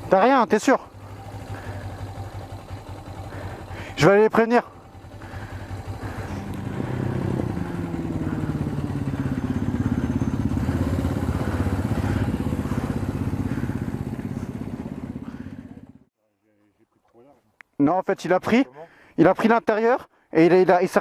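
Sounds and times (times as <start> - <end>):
motorcycle engine running: 0.0 - 16.1.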